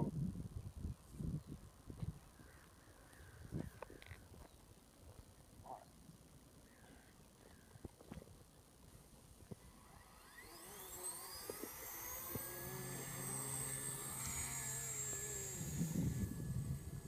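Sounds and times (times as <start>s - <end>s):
electric helicopter motor whine: 9.4s - 17.0s
low hum of rotor: 9.4s - 17.0s.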